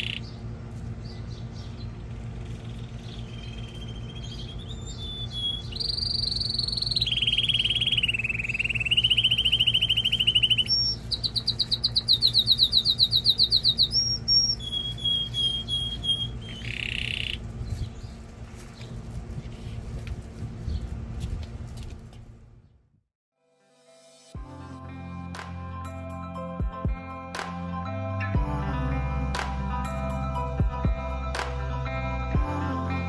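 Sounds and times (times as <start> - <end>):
canary singing trills: 0.0 - 18.2
steady low hum: 0.0 - 23.0.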